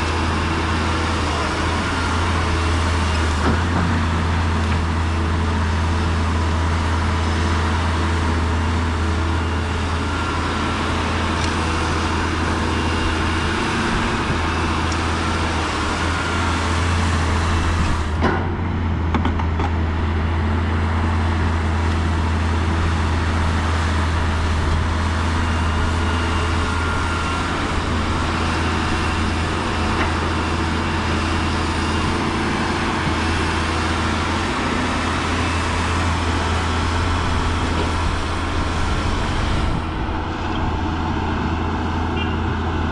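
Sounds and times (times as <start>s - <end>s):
diesel machinery engine drone: 0.0s - 42.9s
brief knock: 19.1s - 19.8s.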